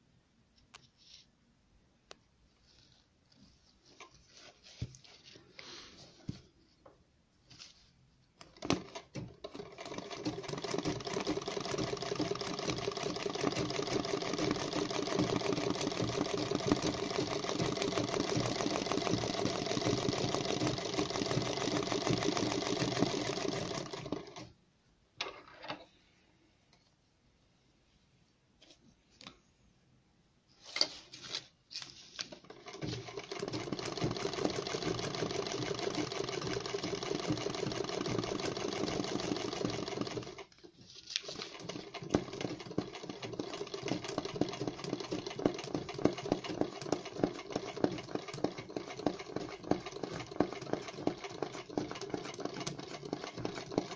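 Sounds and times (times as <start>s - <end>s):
sewing machine running fast: 9.5s - 24.4s, 32.6s - 40.5s, 41.4s - 53.9s.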